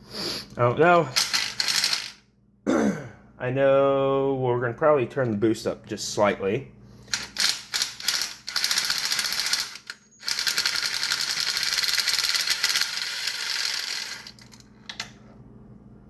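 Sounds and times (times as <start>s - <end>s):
ratchet wrench clicking rapidly: 1.2s - 2.1s, 7.2s - 14.3s.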